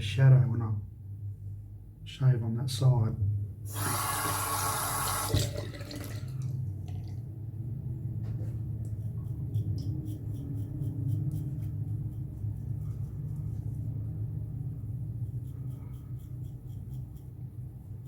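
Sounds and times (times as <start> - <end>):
steady low hum: 0.0 - 18.0
razor scraping stubble: 8.8 - 13.9, 14.9 - 18.0.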